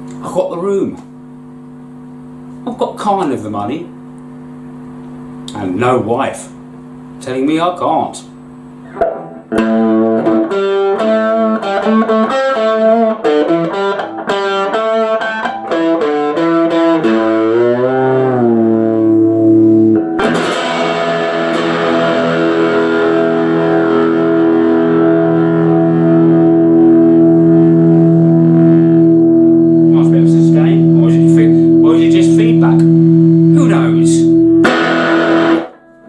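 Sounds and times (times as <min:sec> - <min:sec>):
electric guitar playing: 0:08.8 - 0:36.0.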